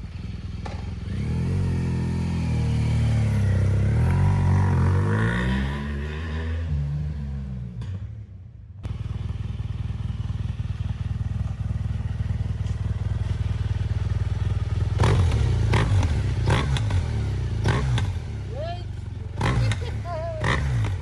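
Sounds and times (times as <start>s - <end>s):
motorcycle engine idling: 0.0s - 4.2s, 8.8s - 21.0s.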